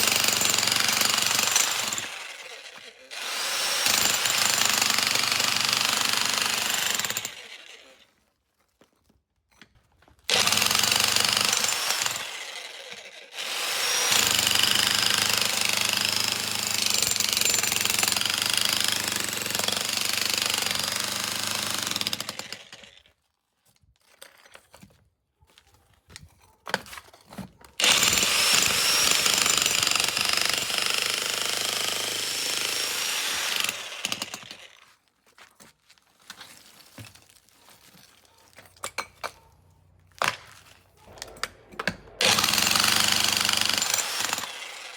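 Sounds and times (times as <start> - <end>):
demolition hammer breaking concrete: 41.1 - 44.7.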